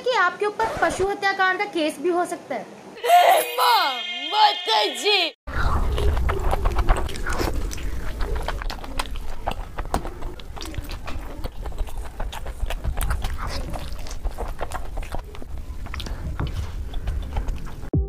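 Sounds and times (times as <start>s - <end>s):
mouth chewing and smacking: 5.6s - 17.9s.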